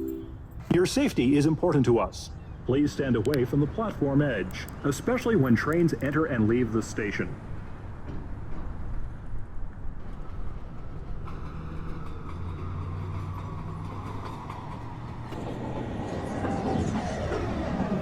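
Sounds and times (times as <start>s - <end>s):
wavering higher tones: 0.0s - 0.4s
subway train rumble: 7.3s - 18.0s.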